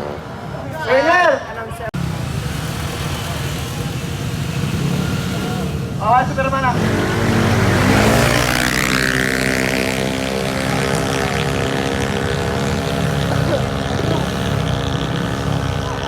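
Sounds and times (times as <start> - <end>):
scooter engines high-revving drone: 0.0 - 1.0, 2.0 - 16.0.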